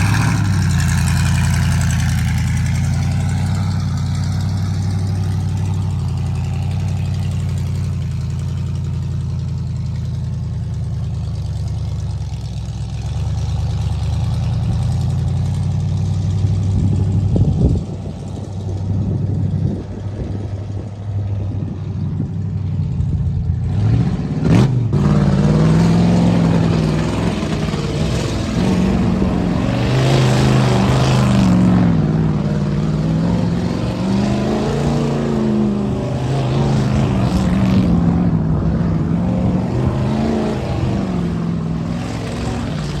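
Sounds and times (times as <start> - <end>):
engine revving up and down: 0.0 - 7.6, 23.6 - 43.0
truck engine idling low: 0.0 - 23.8, 26.3 - 39.9
rushing noise: 25.2 - 43.0.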